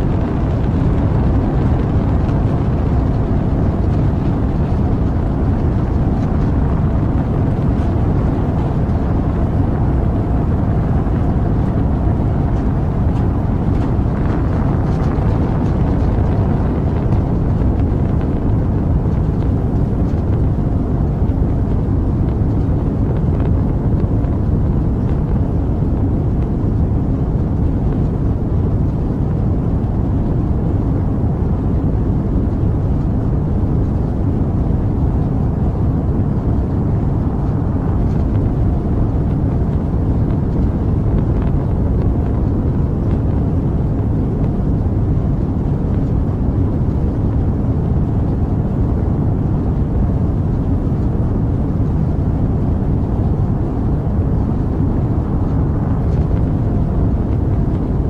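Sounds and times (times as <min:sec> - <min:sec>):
rocket engine rumble: 0:00.0 - 0:58.0.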